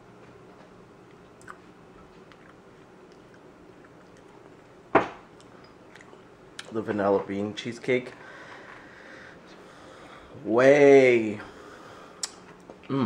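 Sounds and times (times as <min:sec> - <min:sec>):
person chewing: 0:00.5 - 0:06.7.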